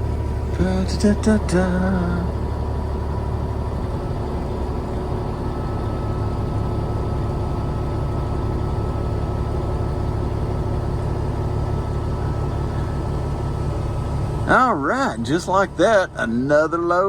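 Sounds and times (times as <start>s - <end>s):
truck diesel engine running: 0.0s - 17.0s.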